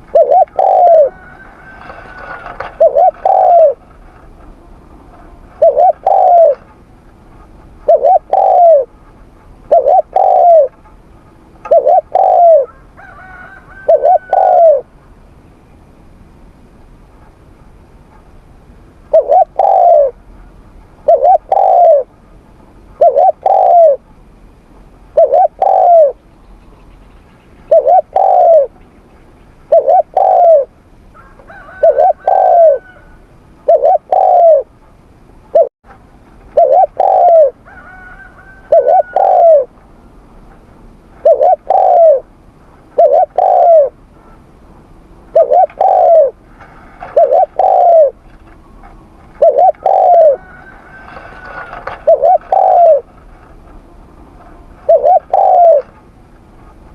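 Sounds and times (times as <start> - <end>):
dove cooing: 0.0 - 14.9, 19.1 - 20.2, 21.0 - 22.1, 23.0 - 24.1, 25.1 - 26.2, 27.7 - 28.8, 29.7 - 34.7, 35.5 - 35.7, 36.5 - 39.8, 41.2 - 42.3, 42.9 - 44.5, 45.3 - 56.0.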